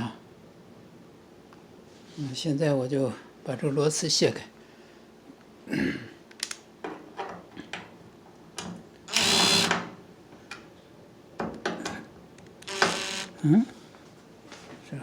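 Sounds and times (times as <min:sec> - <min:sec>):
power drill spinning: 0:09.1 - 0:09.7, 0:12.6 - 0:13.4.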